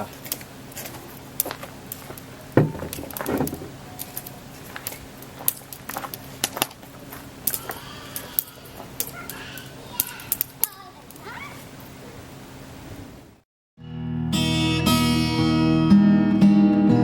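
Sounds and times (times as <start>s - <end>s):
dull thump: 2.6s - 3.8s.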